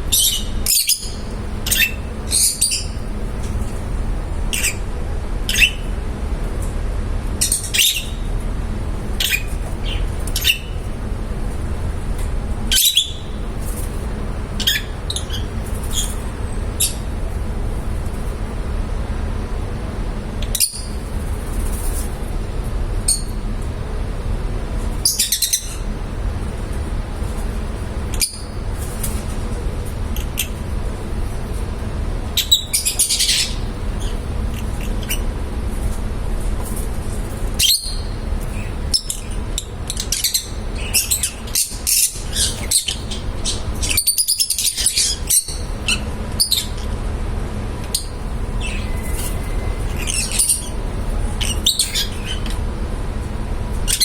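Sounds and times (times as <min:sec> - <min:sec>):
lovebirds chirping: 0:00.0 - 0:03.8, 0:04.4 - 0:04.8, 0:05.5 - 0:05.9, 0:09.2 - 0:10.9, 0:12.7 - 0:17.1, 0:25.0 - 0:25.9, 0:32.4 - 0:35.2, 0:37.6 - 0:46.8, 0:47.9 - 0:52.6.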